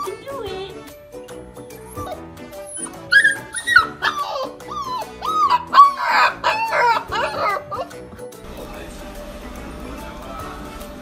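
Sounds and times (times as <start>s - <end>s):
background music: 0.0s - 11.0s
puppy whining: 1.2s - 8.4s.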